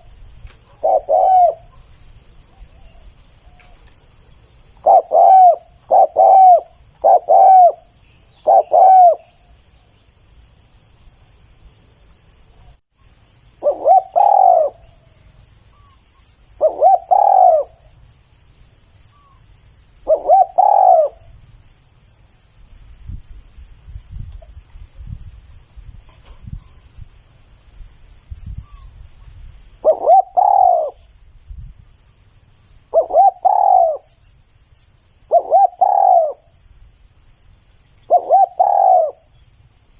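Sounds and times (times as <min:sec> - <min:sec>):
dove cooing: 0:00.0 - 0:01.9, 0:04.8 - 0:09.5, 0:13.6 - 0:15.0, 0:16.6 - 0:17.9, 0:20.0 - 0:21.3, 0:29.8 - 0:31.1, 0:32.9 - 0:34.2, 0:35.3 - 0:36.5, 0:38.1 - 0:39.3
faint chirping: 0:12.5 - 0:18.3, 0:18.9 - 0:21.5, 0:23.0 - 0:27.0, 0:28.1 - 0:32.1, 0:32.8 - 0:37.0.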